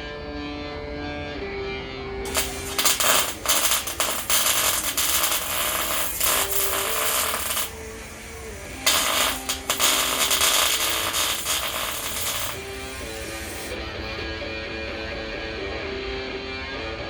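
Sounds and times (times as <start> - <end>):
background music: 0.0 - 17.0
welding arc crackling: 2.3 - 13.8.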